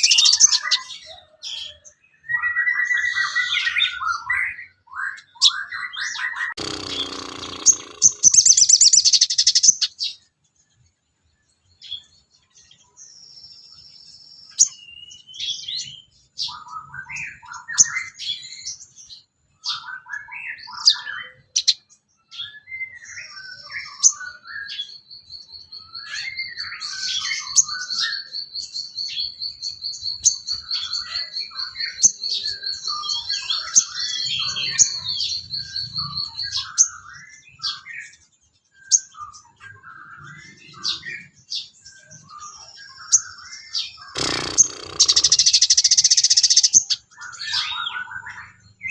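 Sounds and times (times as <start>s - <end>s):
bird chirping and warbling: 0.0s - 10.9s, 11.7s - 48.9s
bird pulsed trill: 6.6s - 10.2s, 21.2s - 48.9s.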